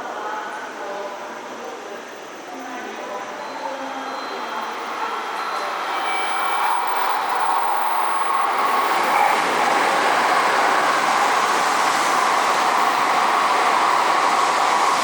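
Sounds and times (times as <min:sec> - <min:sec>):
train rushing past: 0:04.0 - 0:15.0.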